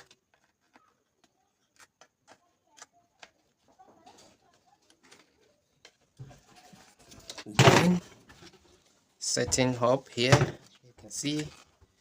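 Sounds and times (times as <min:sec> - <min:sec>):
faint clicks and taps: 0:00.0 - 0:07.4.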